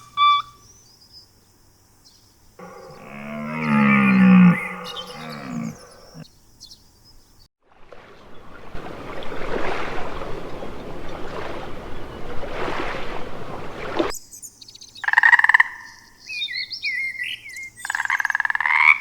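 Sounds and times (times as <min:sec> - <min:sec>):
large animal's long low call: 0:02.6 - 0:06.2.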